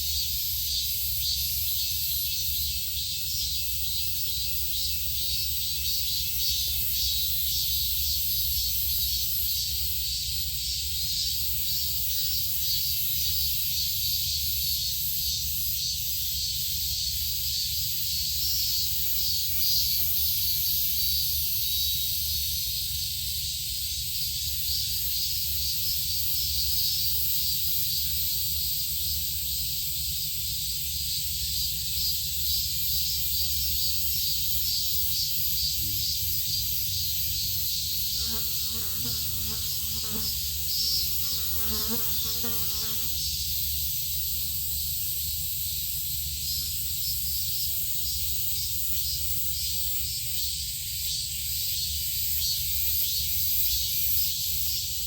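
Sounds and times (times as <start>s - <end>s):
high-pitched insect buzzing: 31.2s - 45.6s.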